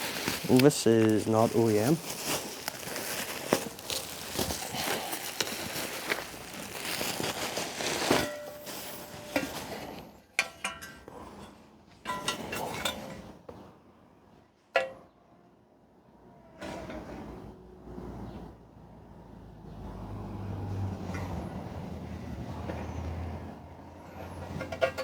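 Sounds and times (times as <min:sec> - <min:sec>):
metal panels rustling and scraping: 0:00.0 - 0:13.4, 0:24.0 - 0:25.0.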